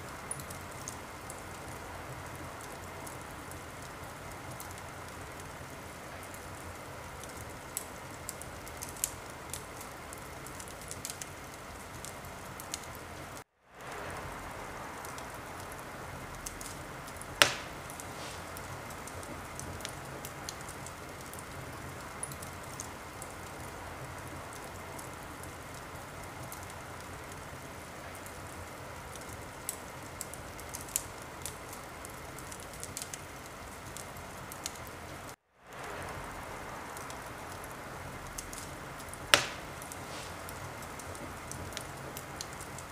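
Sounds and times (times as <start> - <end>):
wood fire crackling: 0.0 - 42.9
sharp loud pop: 17.4 - 18.4, 39.4 - 40.3.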